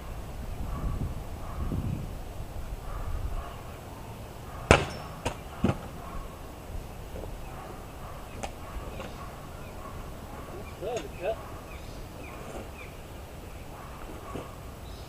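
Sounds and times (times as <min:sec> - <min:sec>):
sword striking a target: 0:04.7 - 0:05.1.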